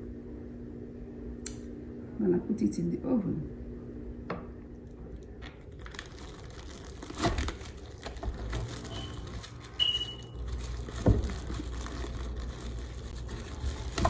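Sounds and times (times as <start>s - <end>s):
oven electronic beeps: 8.9s - 10.4s.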